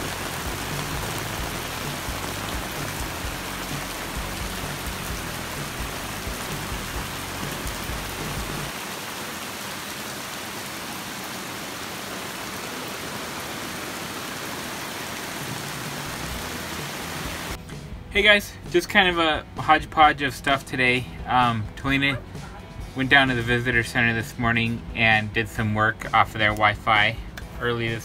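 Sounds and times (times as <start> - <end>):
heavy rain on ground and puddles: 0.0 - 17.6.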